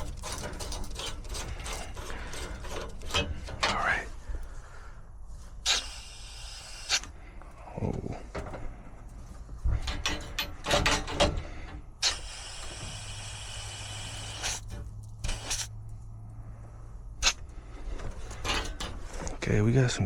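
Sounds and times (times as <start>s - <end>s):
tools knocking and clattering: 0.0s - 4.0s, 8.1s - 11.9s, 18.0s - 19.4s
steady low hum: 0.0s - 20.0s
gas hissing from a fitting: 5.6s - 7.2s, 12.0s - 15.7s.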